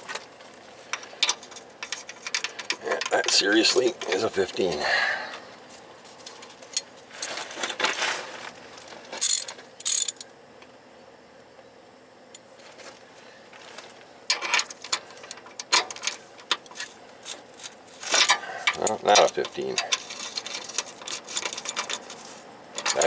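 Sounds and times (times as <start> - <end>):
metal sockets clinking: 0.9 - 4.7, 14.3 - 22.2, 22.8 - 23.0.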